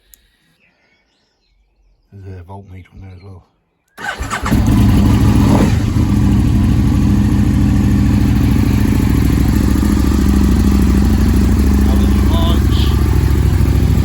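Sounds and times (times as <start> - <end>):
motorcycle engine revving and idling: 4.0 - 14.0.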